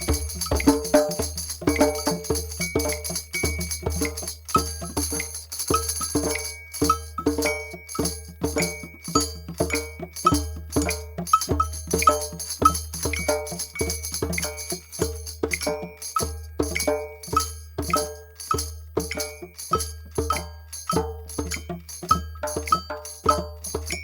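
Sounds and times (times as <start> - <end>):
drums booming in steady rhythm: 0.0 - 24.0.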